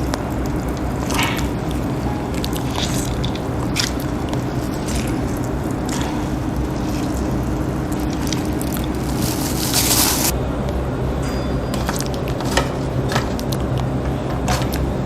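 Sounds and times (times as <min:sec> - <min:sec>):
loud rustling: 0:00.0 - 0:10.3
wet squishing of squeezed eggplant: 0:00.0 - 0:10.3.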